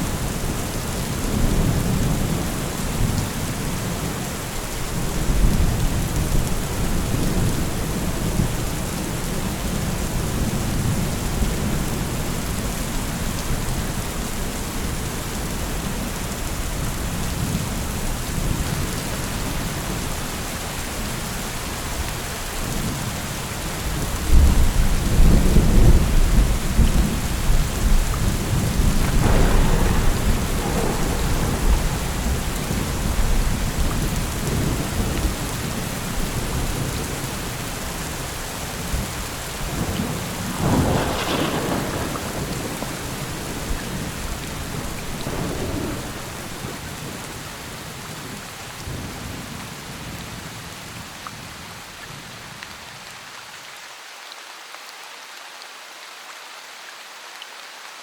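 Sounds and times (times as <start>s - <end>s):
steady rain hiss: 0.0s - 58.0s
rolling thunder: 23.8s - 37.6s, 38.8s - 49.4s.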